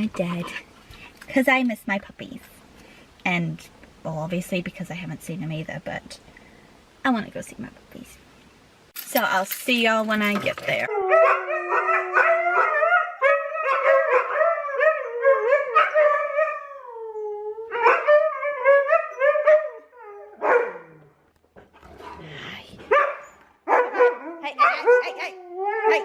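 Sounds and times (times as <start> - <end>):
huskies howling: 10.8 - 21.0.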